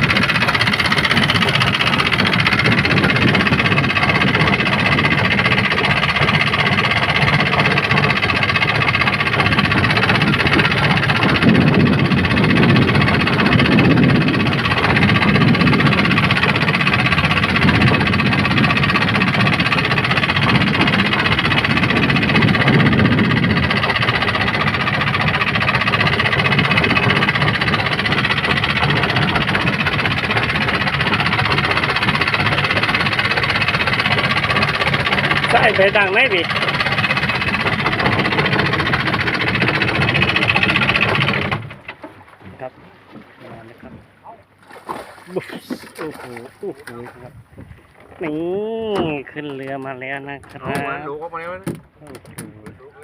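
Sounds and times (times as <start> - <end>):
deeper rumble: 0.0 - 44.6
boat engine running: 0.0 - 53.0.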